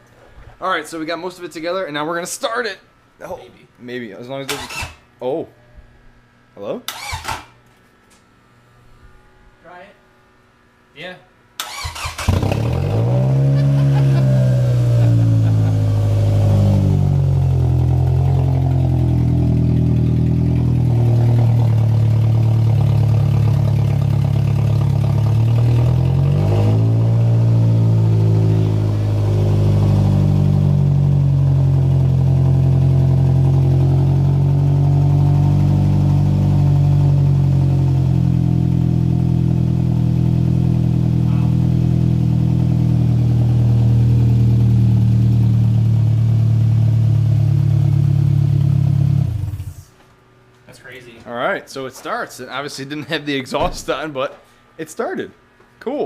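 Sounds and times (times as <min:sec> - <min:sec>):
unmuffled car engine running: 0:12.3 - 0:49.8.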